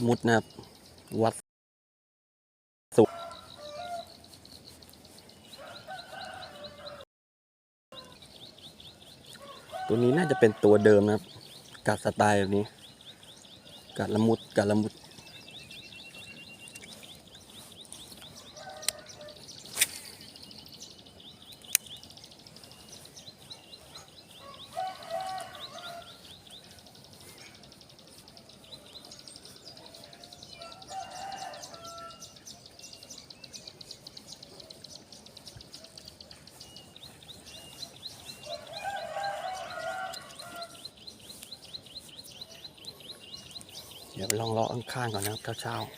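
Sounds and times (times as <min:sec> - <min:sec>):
rooster crowing: 0:02.9 - 0:04.1, 0:05.6 - 0:07.0, 0:09.4 - 0:10.9, 0:18.4 - 0:19.5, 0:24.4 - 0:26.2, 0:30.3 - 0:32.3, 0:38.4 - 0:40.8
sharp clicks: 0:21.5 - 0:22.0.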